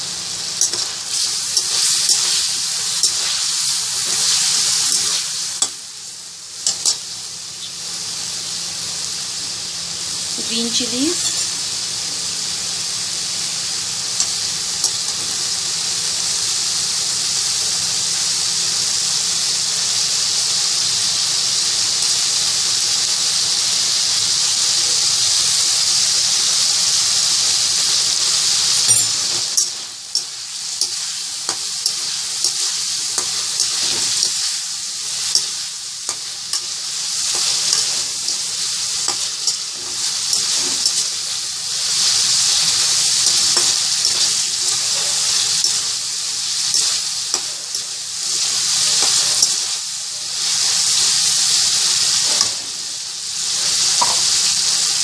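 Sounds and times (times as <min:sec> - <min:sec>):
chicken sizzling in hot oil: 0:00.0 - 0:55.0.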